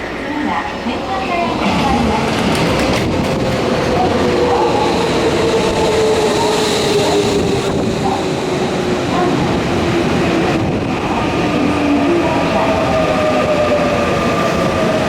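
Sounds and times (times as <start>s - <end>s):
train running and rail noise: 0.0s - 15.0s.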